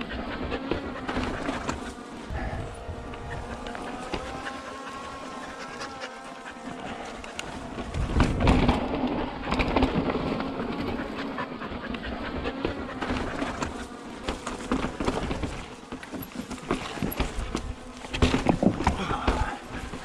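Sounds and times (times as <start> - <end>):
drone propellers buzzing: 0.0 - 20.0
bike rattling over rock: 6.7 - 11.2, 12.0 - 20.0.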